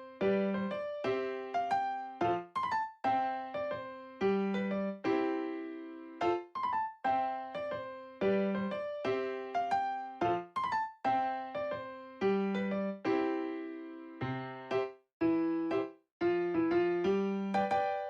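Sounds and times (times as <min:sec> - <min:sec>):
piano-like keyboard music: 0:00.0 - 0:18.0.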